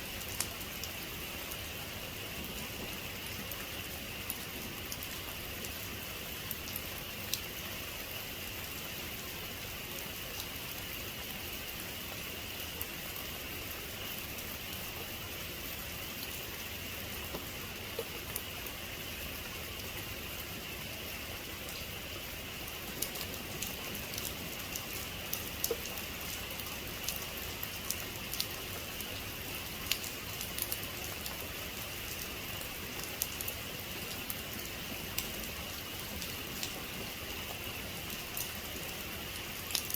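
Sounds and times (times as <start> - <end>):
heavy rain falling: 15.6 - 39.9.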